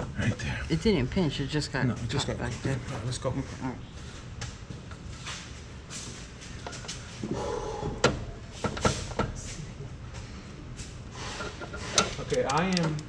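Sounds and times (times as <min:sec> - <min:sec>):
sharp metallic knocks and clicks: 0:11.6 - 0:13.0.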